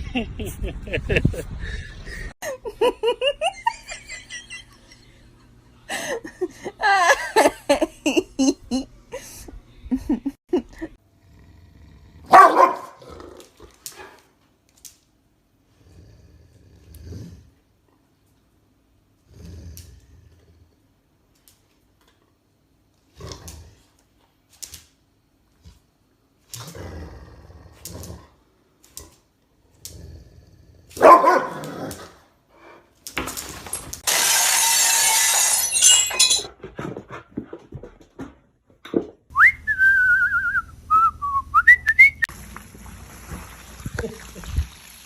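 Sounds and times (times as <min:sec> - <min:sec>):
dog barking and whimpering: 0:12.3 - 0:13.0, 0:31.0 - 0:31.9.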